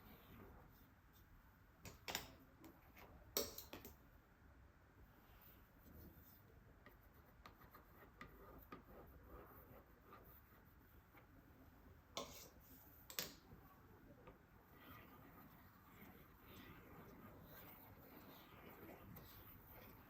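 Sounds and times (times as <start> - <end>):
faint taps and clicks of tools: 1.1 - 4.1, 6.8 - 9.0, 12.2 - 13.6.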